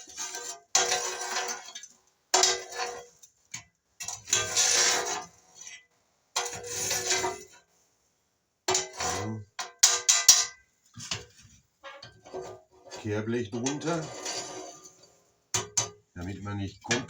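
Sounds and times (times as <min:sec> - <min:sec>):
metal scraper scraping ash: 0:00.0 - 0:01.8, 0:02.4 - 0:03.1, 0:04.0 - 0:05.7, 0:06.4 - 0:07.6, 0:08.7 - 0:11.3, 0:11.9 - 0:16.0.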